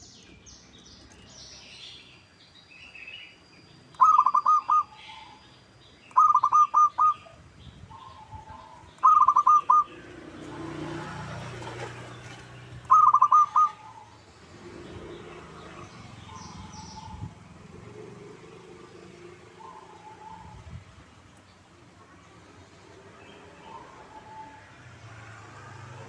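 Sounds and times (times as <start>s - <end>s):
dove cooing: 4.0s - 5.4s, 6.2s - 14.2s, 19.4s - 20.6s.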